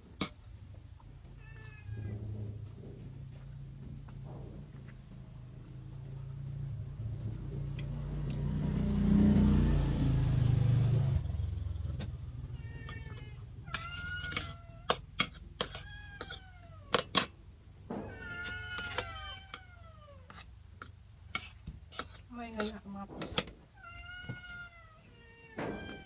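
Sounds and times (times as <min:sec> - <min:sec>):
cats meowing: 0:00.9 - 0:03.6, 0:11.8 - 0:17.3, 0:17.9 - 0:20.5, 0:23.6 - 0:26.0
loud low rumble: 0:01.9 - 0:12.6.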